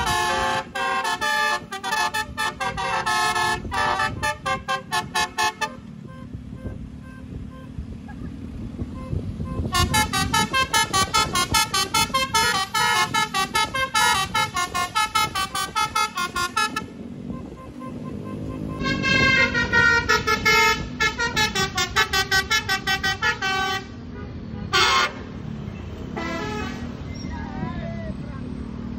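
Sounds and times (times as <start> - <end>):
bus horn playing a melody: 0.0 - 7.9, 8.9 - 25.3, 26.1 - 26.9
bus engine rumbling: 0.0 - 28.9.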